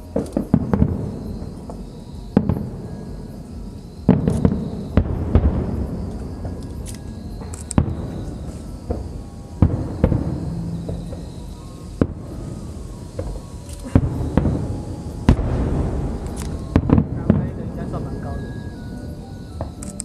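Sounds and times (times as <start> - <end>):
crackling rumbling firework din: 0.0 - 20.0
firework shells bursting: 4.0 - 18.2.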